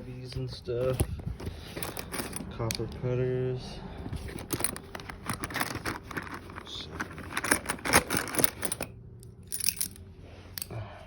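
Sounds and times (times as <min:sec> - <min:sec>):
metal tools rattling in bag: 0:00.8 - 0:02.8, 0:04.0 - 0:10.0.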